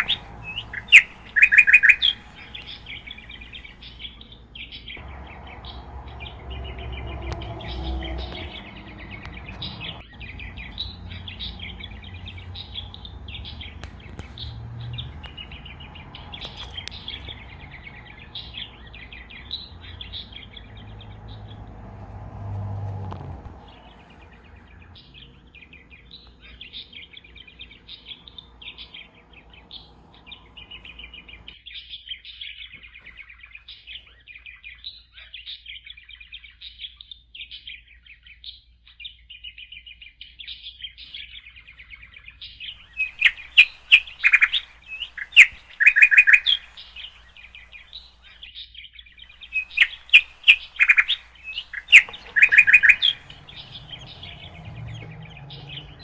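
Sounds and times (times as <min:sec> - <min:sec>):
budgerigars chirping and chattering: 0:00.0 - 0:31.6, 0:41.6 - 0:48.5, 0:49.2 - 0:56.0.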